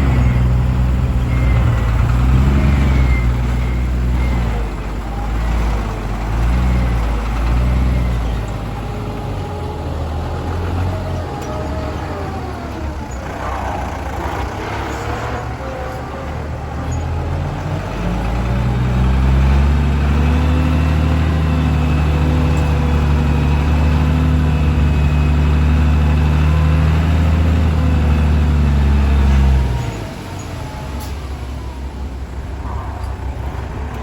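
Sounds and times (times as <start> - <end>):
truck diesel engine under load: 0.0 - 34.0.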